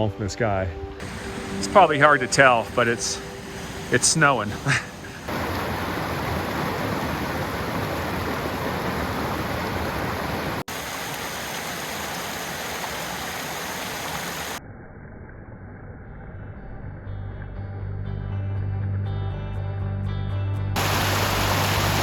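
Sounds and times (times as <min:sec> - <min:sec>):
rushing mountain stream: 0:01.0 - 0:14.6, 0:20.8 - 0:22.0.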